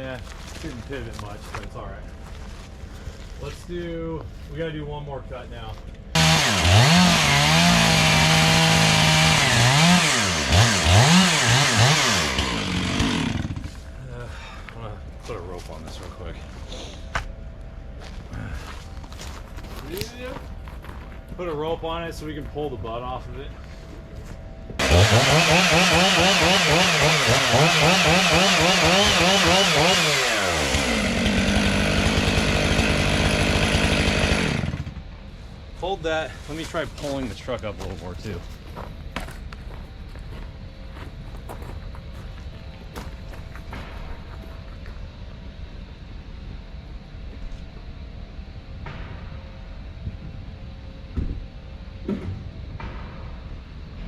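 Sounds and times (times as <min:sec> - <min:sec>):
chainsaw revving: 0:06.2 - 0:13.8, 0:24.8 - 0:35.0.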